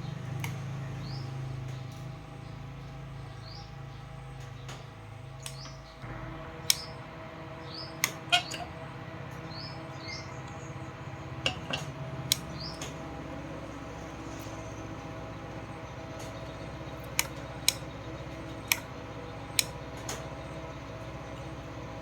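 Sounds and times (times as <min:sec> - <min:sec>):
steady low hum: 0:00.0 - 0:22.0
bird chirping: 0:07.6 - 0:21.6.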